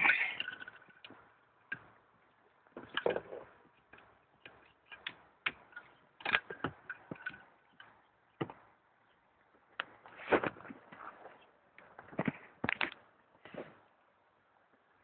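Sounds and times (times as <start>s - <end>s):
sharp clicks and knocks: 0.0s - 9.2s.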